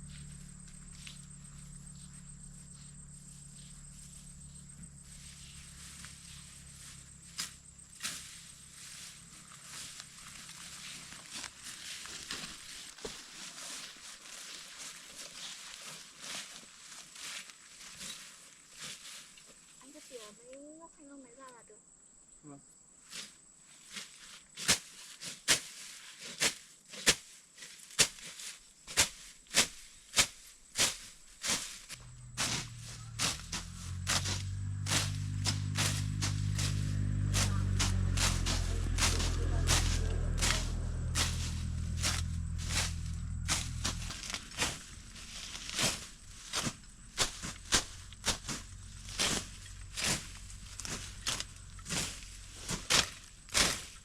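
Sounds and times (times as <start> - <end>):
knife chopping through brush: 27.9 - 54.0.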